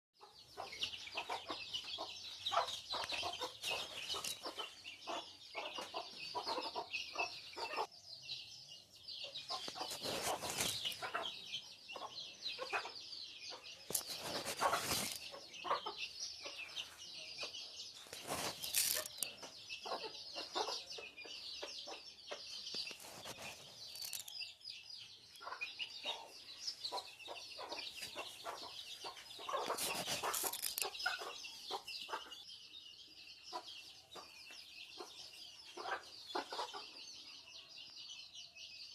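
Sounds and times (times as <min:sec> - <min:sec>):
chickens clucking: 0:00.2 - 0:08.0, 0:09.2 - 0:32.7, 0:33.4 - 0:37.5
high chirping: 0:08.5 - 0:37.7.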